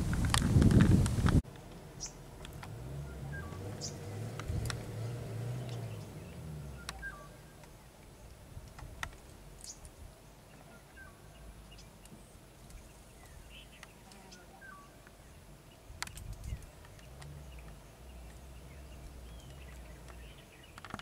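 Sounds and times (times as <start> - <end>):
faint bird chirps: 3.0 - 4.1, 5.6 - 8.4, 9.6 - 20.8
sharp clicks: 16.0 - 18.4.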